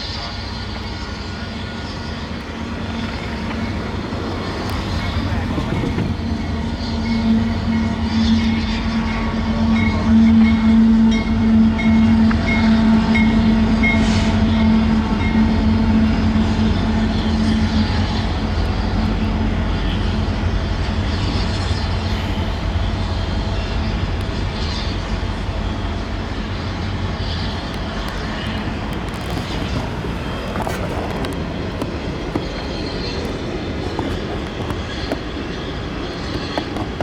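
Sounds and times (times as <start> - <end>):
diesel locomotives passing: 0.0 - 37.0
rumble of rolling train cars: 0.0 - 37.0.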